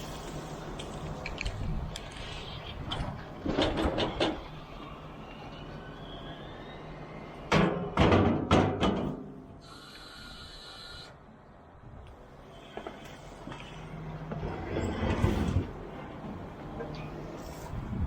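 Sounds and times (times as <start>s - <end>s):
loud banging and clattering: 7.5s - 9.3s.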